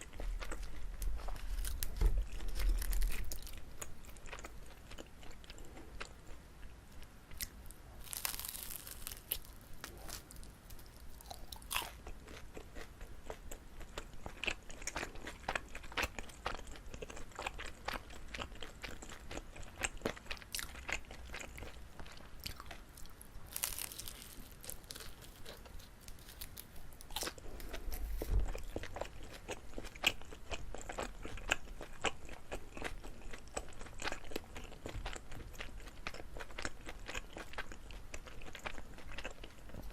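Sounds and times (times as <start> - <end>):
chewing sticky rice cake: 0.0 - 39.9
crackly bites: 0.2 - 5.6, 7.3 - 17.5, 22.4 - 29.9.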